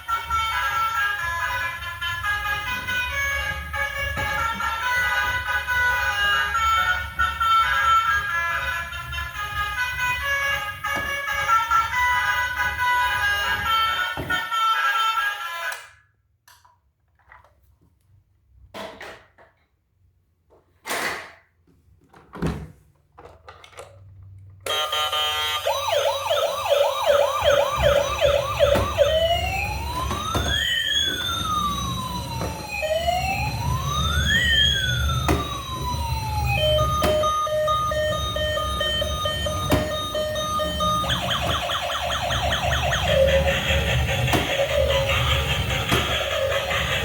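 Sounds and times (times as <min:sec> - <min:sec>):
toy electronic siren: 0:00.0 - 0:16.0, 0:24.7 - 0:47.0.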